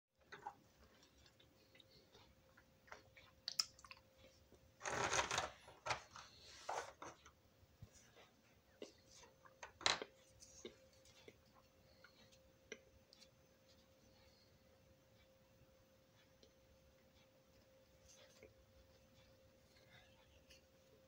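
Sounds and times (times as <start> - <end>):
wet chewing clicks and smacks: 0.3 - 4.1.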